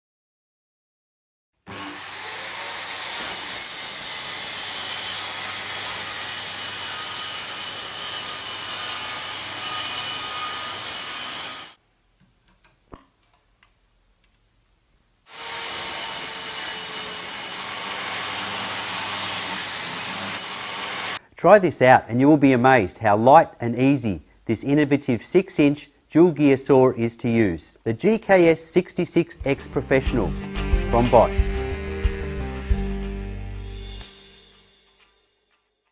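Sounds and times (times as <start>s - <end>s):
circular saw cutting wood: 1.7s - 11.8s, 15.3s - 21.2s, 33.5s - 35.2s.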